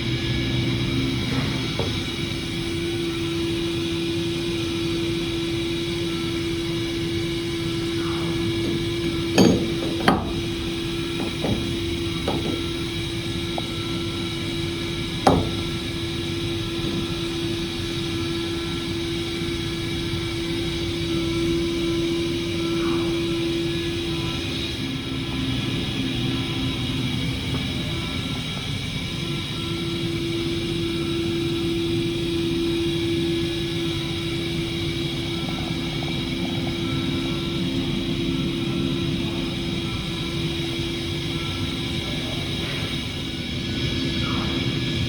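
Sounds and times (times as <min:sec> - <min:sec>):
milling machine running: 0:00.0 - 0:45.0
sharp knocks: 0:08.6 - 0:12.8, 0:15.2 - 0:15.8.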